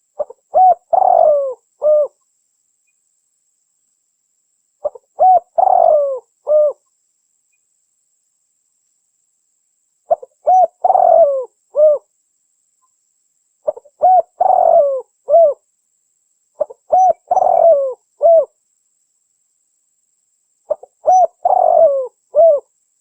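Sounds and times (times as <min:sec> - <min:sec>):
dove cooing: 0:00.2 - 0:02.2, 0:04.8 - 0:06.8, 0:10.1 - 0:12.0, 0:13.6 - 0:15.6, 0:16.6 - 0:18.5, 0:20.7 - 0:22.7.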